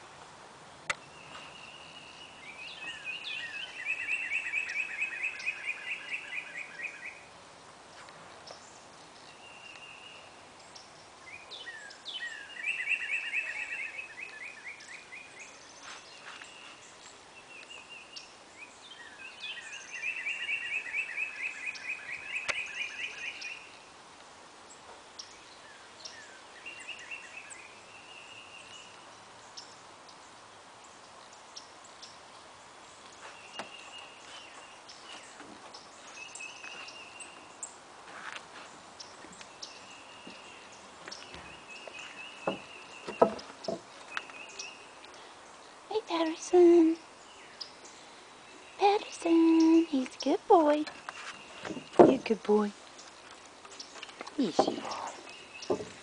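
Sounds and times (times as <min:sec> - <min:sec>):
bird chirps: 0:01.0 - 0:07.3, 0:08.5 - 0:23.8, 0:39.0 - 0:45.4, 0:46.0 - 0:56.0.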